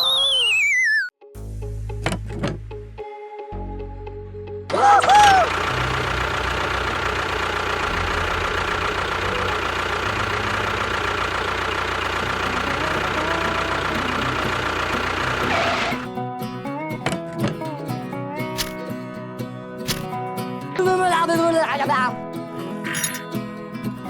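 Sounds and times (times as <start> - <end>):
engine running: 4.7 - 16.2, 21.5 - 23.5.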